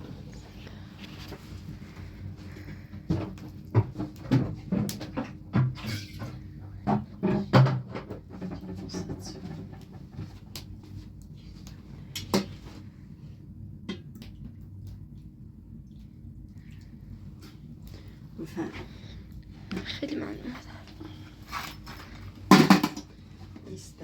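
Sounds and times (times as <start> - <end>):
low steady hum: 0.0 - 24.0
household objects knocking and clattering: 3.0 - 10.1, 22.4 - 23.1.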